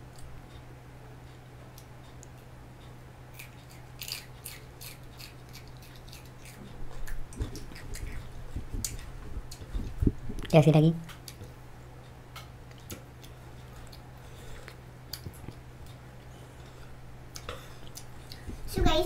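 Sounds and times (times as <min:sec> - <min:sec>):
person chewing: 0:03.3 - 0:09.9, 0:12.6 - 0:18.5.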